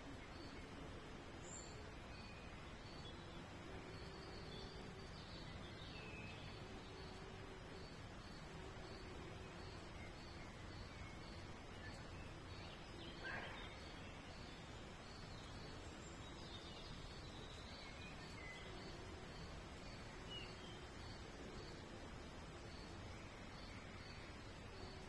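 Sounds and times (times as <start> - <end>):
background hiss: 0.0 - 25.0
bird chirps: 8.2 - 21.9.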